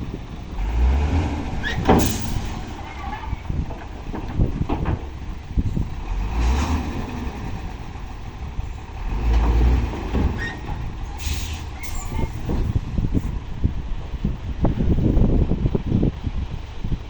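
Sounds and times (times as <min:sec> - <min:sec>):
dump truck engine running: 0:00.0 - 0:17.0
short hisses: 0:11.2 - 0:12.4.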